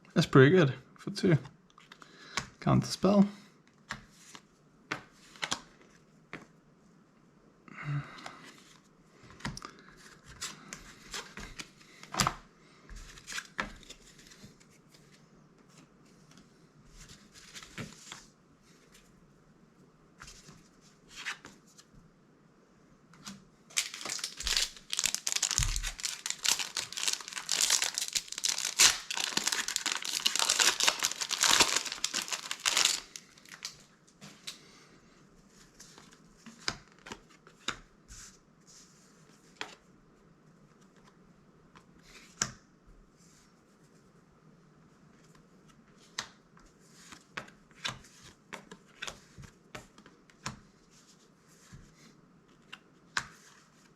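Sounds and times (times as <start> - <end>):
foil wrapper crinkling and tearing: 23.7 - 33.8.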